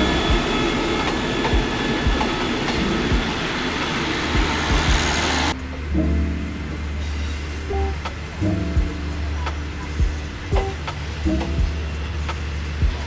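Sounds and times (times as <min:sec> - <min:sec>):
low knocks from train wheels: 0:00.0 - 0:03.6, 0:04.3 - 0:05.2
train rumbling on rails: 0:00.0 - 0:13.0.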